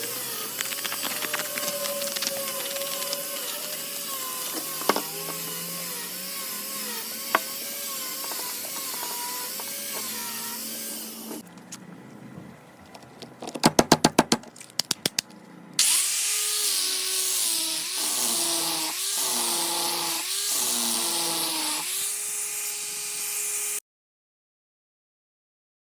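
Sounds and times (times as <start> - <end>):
sanding wheel whirring on wood: 0.0 - 11.4, 15.8 - 23.8.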